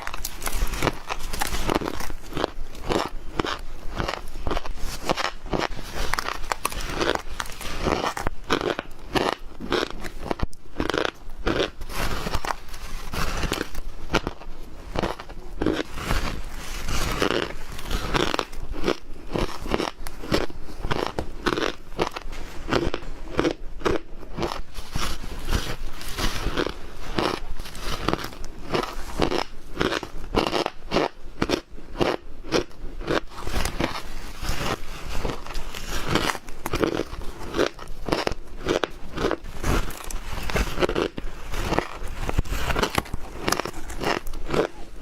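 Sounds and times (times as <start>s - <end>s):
ice being chewed: 0.0s - 45.0s.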